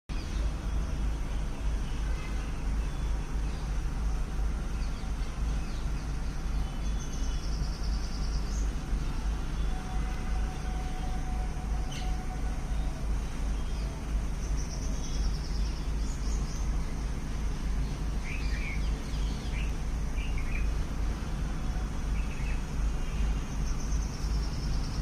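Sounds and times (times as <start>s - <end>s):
low outdoor rumble: 0.1s - 25.0s
faint bird chirps: 6.5s - 16.7s.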